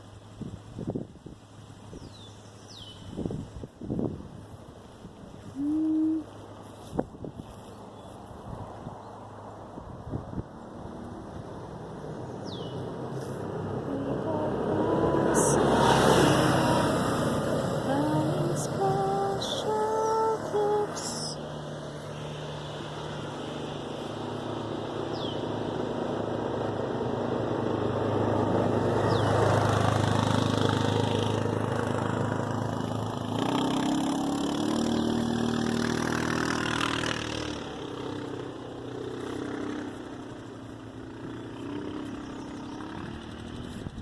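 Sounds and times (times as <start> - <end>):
motor engine running: 10.9 - 44.0.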